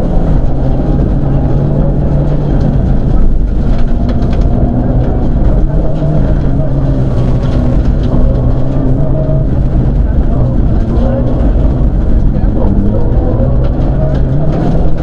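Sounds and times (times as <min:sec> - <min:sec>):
rally car engine running hard: 0:00.0 - 0:15.0
clicks and rattles: 0:02.2 - 0:08.9.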